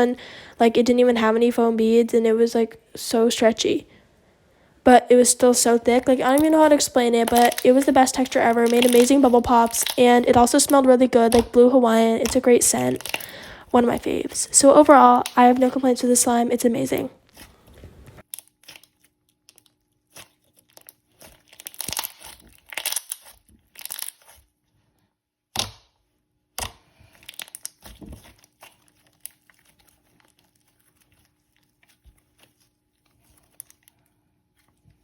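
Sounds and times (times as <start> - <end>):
slime squelching and popping: 5.9 - 16.0, 18.2 - 24.5, 25.5 - 35.0.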